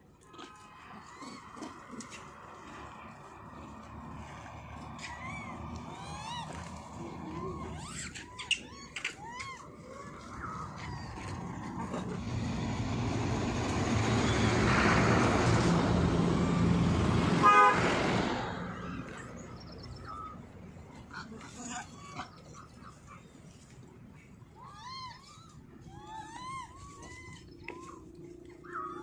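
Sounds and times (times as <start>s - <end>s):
vehicle passing by: 0.3s - 23.5s.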